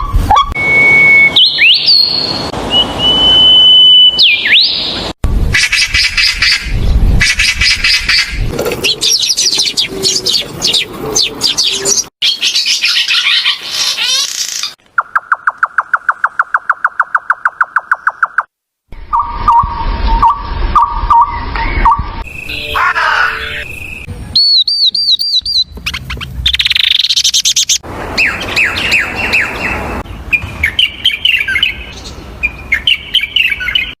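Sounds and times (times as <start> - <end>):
falling slurred bird whistles: 0.3 - 4.8
arched whistled bird notes: 0.3 - 4.9, 19.1 - 25.7
birds twittering and chirping: 5.8 - 18.4, 19.1 - 34.0
choppy bird chattering: 21.8 - 29.6.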